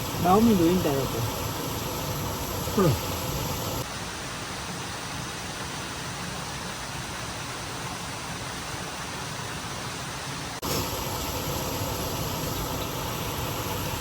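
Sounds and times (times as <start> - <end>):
stream rushing over rocks: 2.7 - 10.7.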